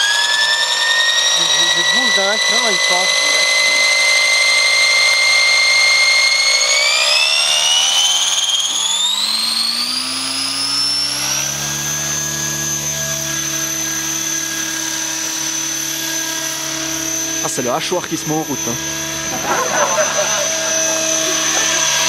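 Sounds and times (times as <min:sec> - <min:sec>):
electric motor whine rising: 0:00.0 - 0:22.0
rotor hum: 0:00.0 - 0:22.0.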